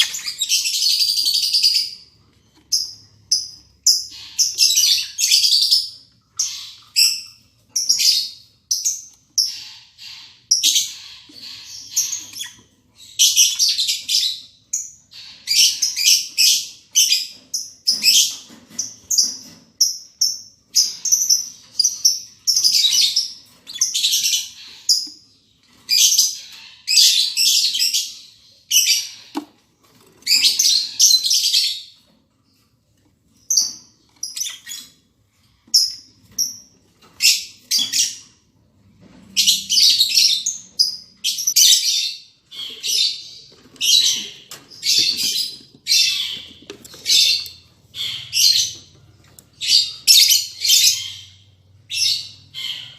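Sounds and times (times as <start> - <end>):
lovebirds chirping shrilly: 0.0 - 14.4, 39.3 - 48.9, 49.5 - 52.9.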